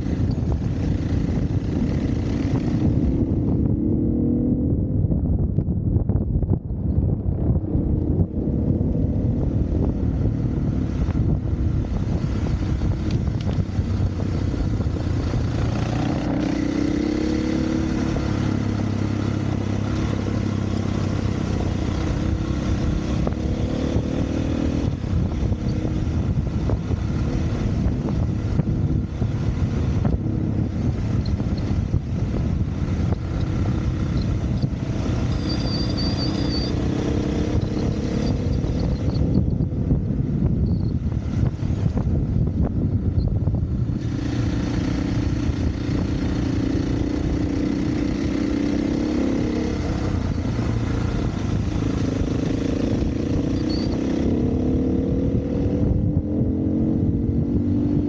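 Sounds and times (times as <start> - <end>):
dirt bike engine revving: 14.8 - 25.7, 44.0 - 58.0.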